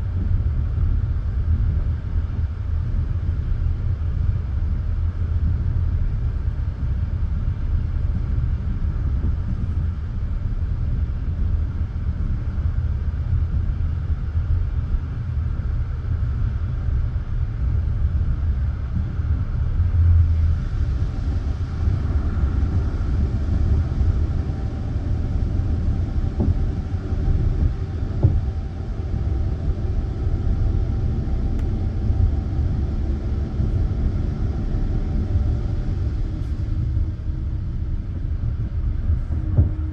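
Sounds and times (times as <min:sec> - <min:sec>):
train wheels rumbling on rails: 0:18.5 - 0:39.9.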